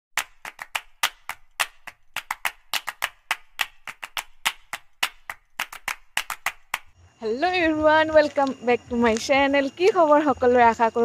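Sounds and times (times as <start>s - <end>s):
sharp percussive clicks: 0.2s - 7.0s.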